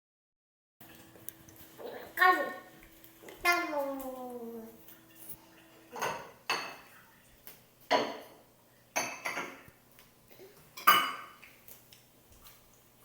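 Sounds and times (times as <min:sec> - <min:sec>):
spoon clinking against dish: 0:09.0 - 0:09.6, 0:10.8 - 0:11.4.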